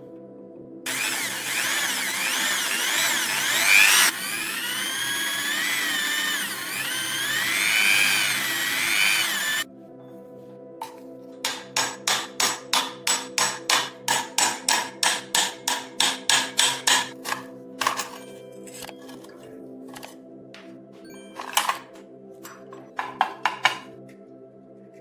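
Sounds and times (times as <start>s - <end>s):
soft background music: 0.0s - 1.5s, 4.8s - 25.0s
power tool motor whine: 0.9s - 9.6s.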